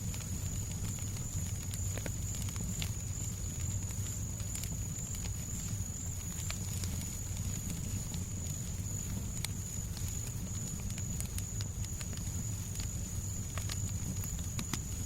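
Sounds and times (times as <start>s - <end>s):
fireplace crackling and popping: 0.0s - 15.0s.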